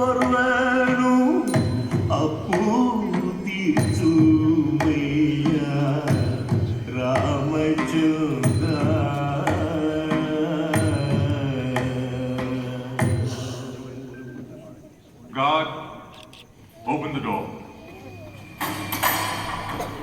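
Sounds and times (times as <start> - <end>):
person singing devotional song: 0.0 - 14.2.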